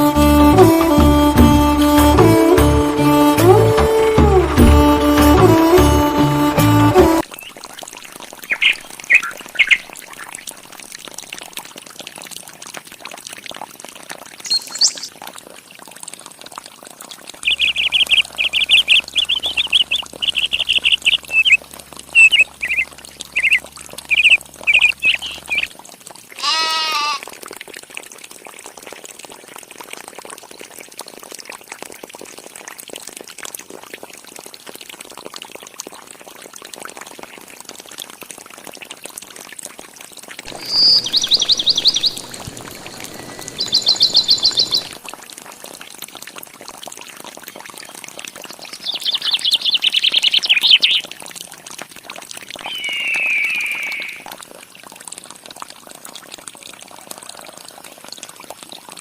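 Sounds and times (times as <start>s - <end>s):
water pouring: 7.2s - 26.4s, 27.3s - 49.2s
bird chirping: 8.5s - 10.3s, 14.4s - 15.1s, 17.5s - 21.6s, 22.2s - 25.7s, 40.5s - 45.0s, 52.6s - 54.3s
low bird call: 17.5s - 21.6s, 22.2s - 22.8s, 23.4s - 25.7s, 40.5s - 45.0s, 52.6s - 54.3s.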